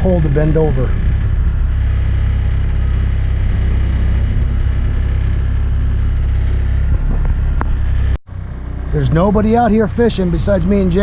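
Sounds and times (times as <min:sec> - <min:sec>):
outboard motor rumbling: 0:00.0 - 0:11.0.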